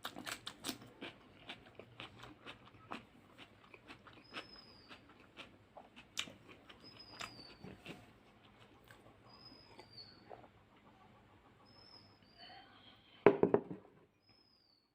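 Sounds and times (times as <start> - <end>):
wet chewing and mouth smacks: 0.0 - 11.4.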